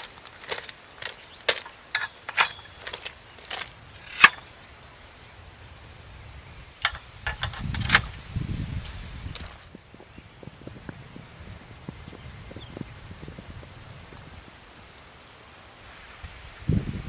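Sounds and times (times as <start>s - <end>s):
tent frame parts clicking: 0.0s - 4.6s, 6.8s - 9.7s.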